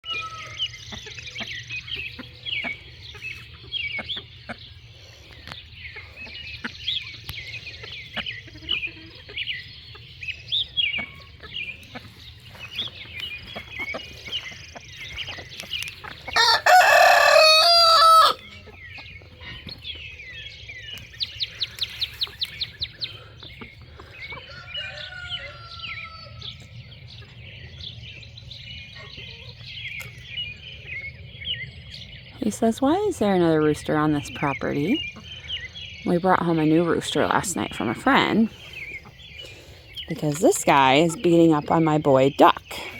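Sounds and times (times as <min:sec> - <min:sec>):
birds chirping: 0:00.0 - 0:42.9
rooster crowing: 0:16.4 - 0:18.5, 0:24.5 - 0:26.5.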